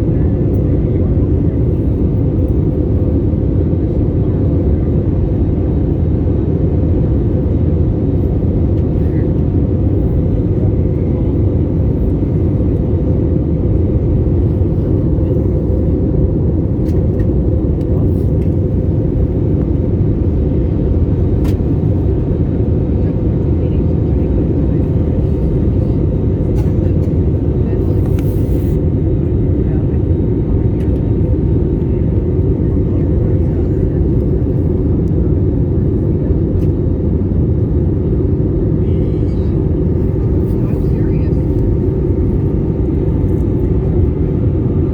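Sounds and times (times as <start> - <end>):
airliner cabin engine rumble: 0.0 - 44.9.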